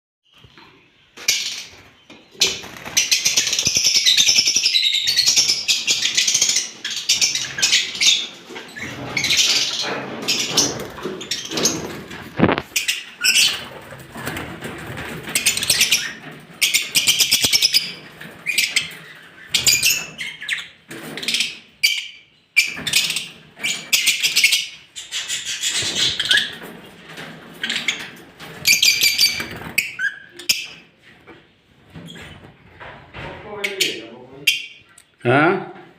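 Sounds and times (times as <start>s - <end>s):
lovebirds chattering: 0.9s - 13.8s, 15.2s - 26.6s.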